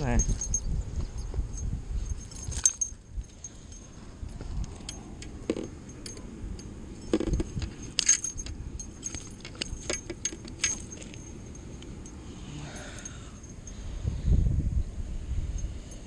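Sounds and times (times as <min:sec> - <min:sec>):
metallic clicks and clinks: 0:00.0 - 0:13.8.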